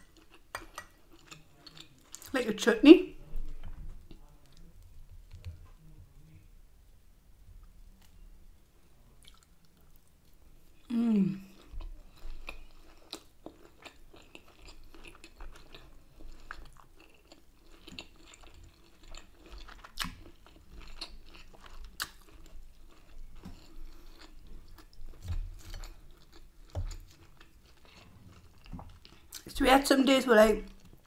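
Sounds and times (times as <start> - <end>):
mouth and teeth clicks: 0.0 - 2.3
person chewing crunchy food: 0.0 - 2.3, 9.2 - 10.4, 11.4 - 29.5.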